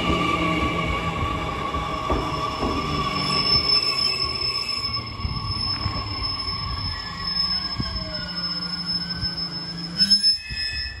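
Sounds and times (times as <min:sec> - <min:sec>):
train clatter: 0:00.0 - 0:04.6
wheels rumbling on rails: 0:00.0 - 0:10.0
electric train whine: 0:00.0 - 0:11.0.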